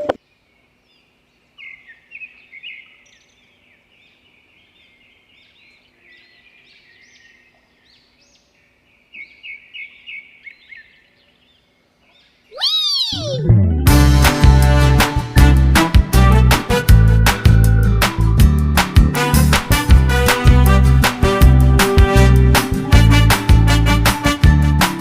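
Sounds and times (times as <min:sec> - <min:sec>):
small bird chirping: 0:00.9 - 0:13.5.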